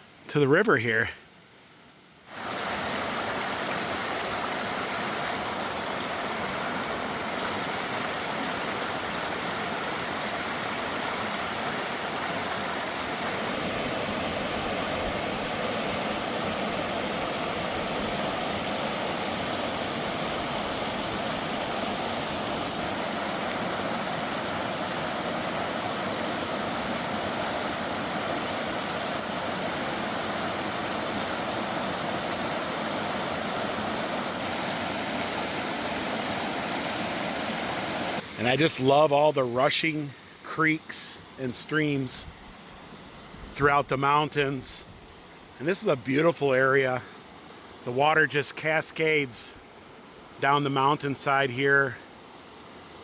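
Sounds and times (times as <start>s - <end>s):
water rushing over rocks: 2.3s - 40.0s.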